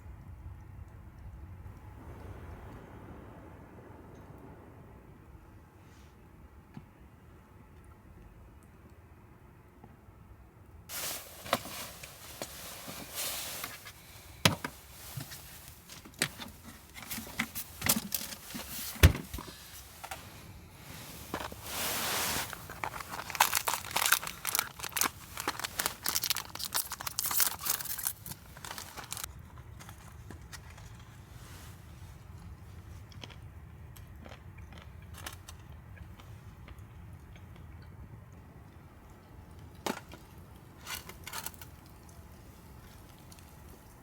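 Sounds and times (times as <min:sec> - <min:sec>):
plastic wrapper crinkling and tearing: 0:22.4 - 0:29.3.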